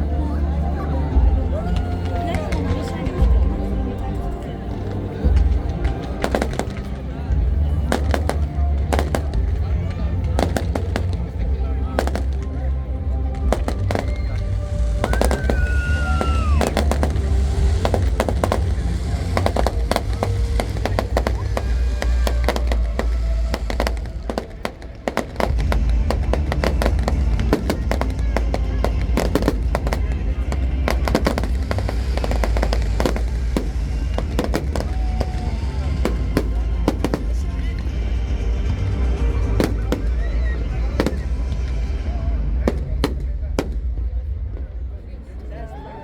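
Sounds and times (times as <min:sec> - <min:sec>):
low rumble: 0:00.0 - 0:45.2
fireworks bangs and crackles: 0:00.1 - 0:46.0
firework whistle: 0:13.6 - 0:30.1.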